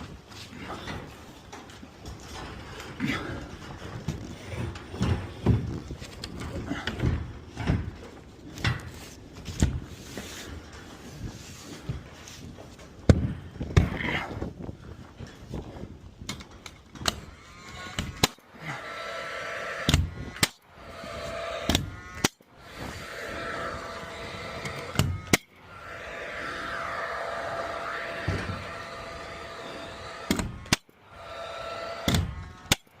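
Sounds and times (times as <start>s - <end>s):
steady hum with faint tone: 17.2s - 32.8s.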